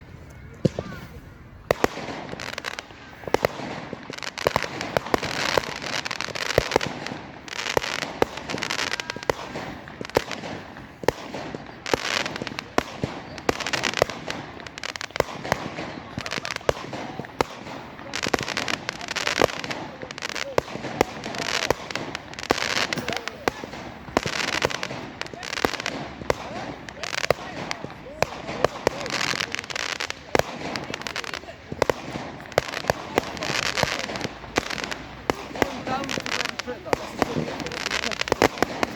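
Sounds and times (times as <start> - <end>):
fireworks bangs: 0.0 - 38.9
fireworks crackling: 0.0 - 38.9
hissing crackling bursts: 0.0 - 38.9.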